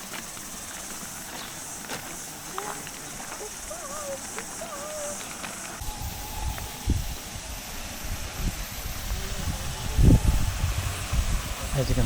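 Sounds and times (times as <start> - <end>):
cicada chorus shrilling: 0.0 - 12.0
low gusty rumble: 5.6 - 12.0.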